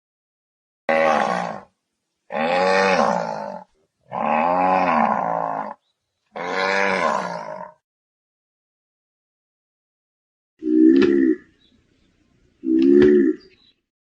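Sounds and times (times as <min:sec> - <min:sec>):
long animal calls: 0:02.3 - 0:07.8, 0:10.6 - 0:11.6, 0:12.6 - 0:13.6.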